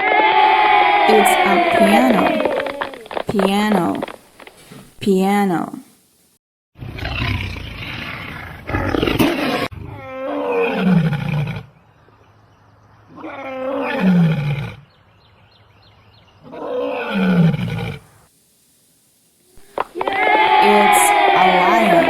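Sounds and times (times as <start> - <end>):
lion roaring: 6.8 - 11.7, 13.1 - 14.8, 16.4 - 18.1.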